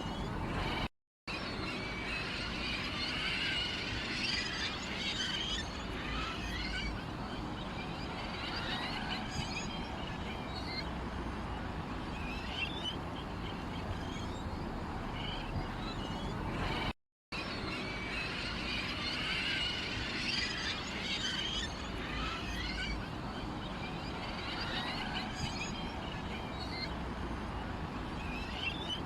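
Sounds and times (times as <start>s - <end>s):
sparrows chirping and twittering: 12.2s - 16.9s, 17.5s - 27.0s.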